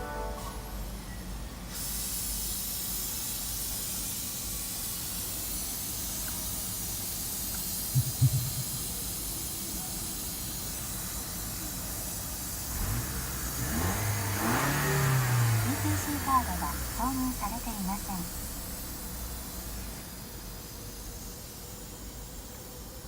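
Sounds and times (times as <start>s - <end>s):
steady airy hiss: 0.0s - 23.0s
short low thumps: 8.0s - 8.9s.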